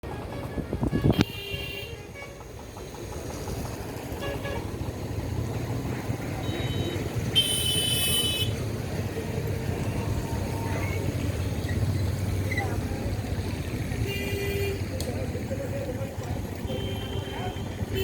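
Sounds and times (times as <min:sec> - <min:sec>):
traffic rumble: 0:00.0 - 0:18.0
high-pitched vehicle horn: 0:00.2 - 0:02.4, 0:06.4 - 0:08.5, 0:16.6 - 0:18.0.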